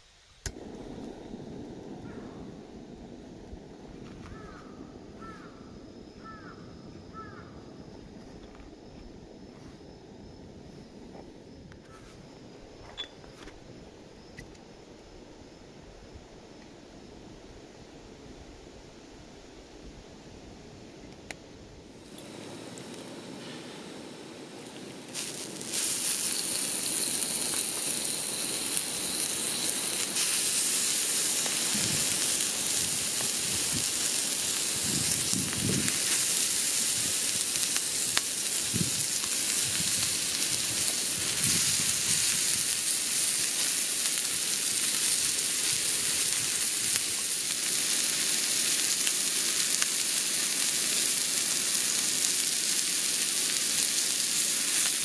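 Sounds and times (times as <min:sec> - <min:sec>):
food sizzling in a pan: 0:04.3 - 0:07.4, 0:21.9 - 0:55.0.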